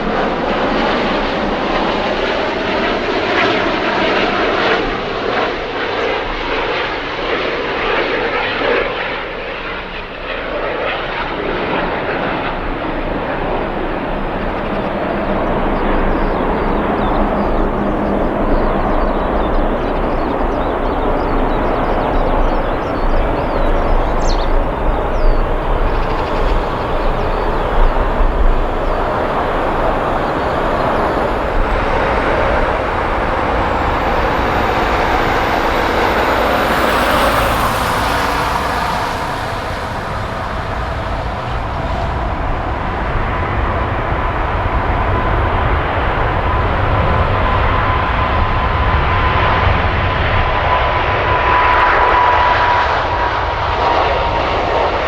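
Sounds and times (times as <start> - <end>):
jet engine roaring: 0.0 - 55.0
steady whining tone: 11.8 - 49.0.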